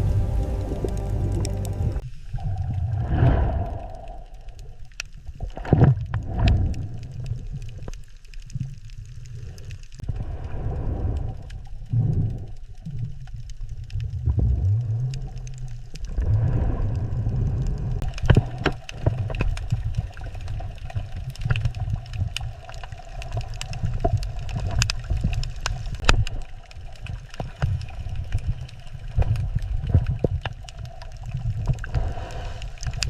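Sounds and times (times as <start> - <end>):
short rising low tone: 0.0 - 2.0
underwater rumble of moving water: 0.0 - 33.0
sharp clicks and crackles: 3.5 - 33.0.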